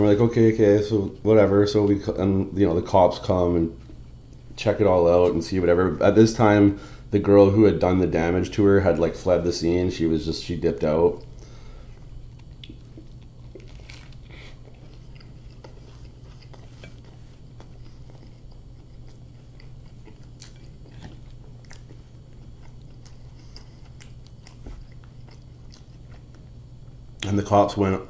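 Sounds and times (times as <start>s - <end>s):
steady low hum: 0.0s - 28.0s
person chewing food: 11.2s - 27.3s.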